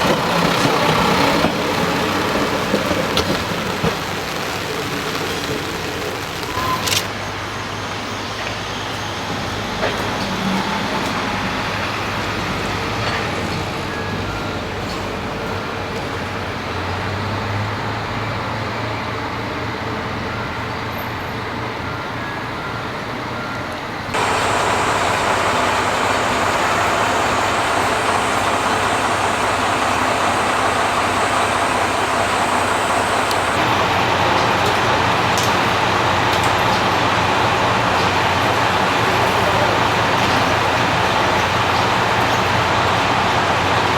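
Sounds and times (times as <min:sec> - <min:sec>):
hissy running sound: 0:00.0 - 0:07.1, 0:24.2 - 0:43.9
diesel railcar engine drone: 0:00.0 - 0:43.9.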